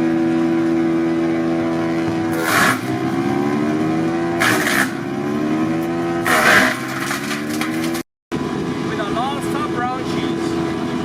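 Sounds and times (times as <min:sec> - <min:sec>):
wood chipper engine running: 0:00.0 - 0:11.0
branches being chipped: 0:02.3 - 0:03.1, 0:04.4 - 0:05.1, 0:05.8 - 0:08.0.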